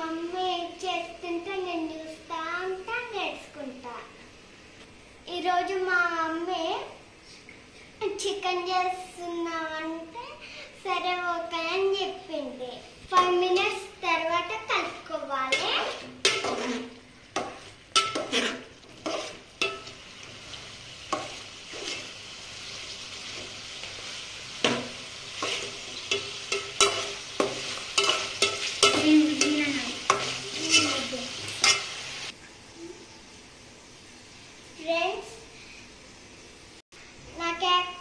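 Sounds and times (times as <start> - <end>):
chicken sizzling in oil: 13.6 - 38.0
metal spoon scraping a pan: 14.8 - 32.3.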